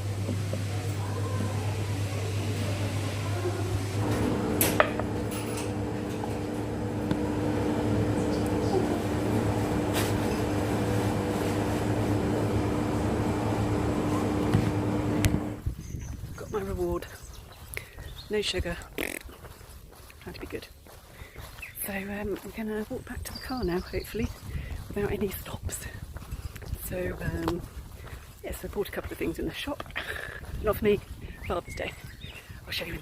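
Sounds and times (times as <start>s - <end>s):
higher steady hum: 0.0s - 15.6s
steady machine hum: 0.0s - 15.6s.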